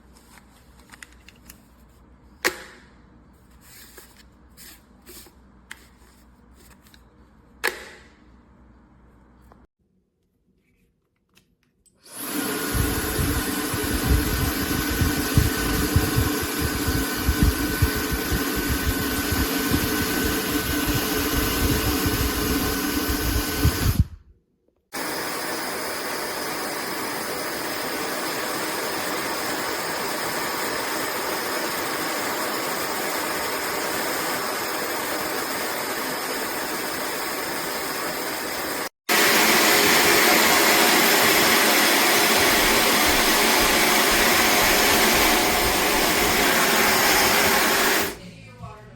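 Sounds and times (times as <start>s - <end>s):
hair dryer blowing: 12.0s - 24.2s, 25.0s - 48.2s
air buffeting microphone: 12.7s - 24.2s.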